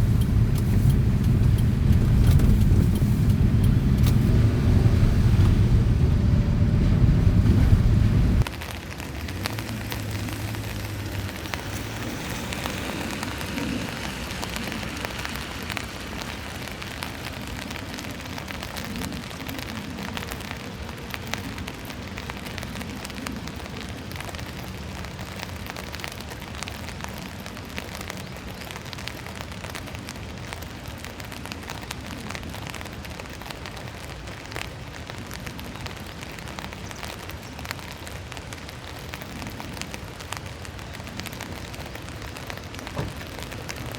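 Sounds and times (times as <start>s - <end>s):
low rumbling: 0.0s - 8.5s
heavy rain on hard surface: 0.0s - 43.9s.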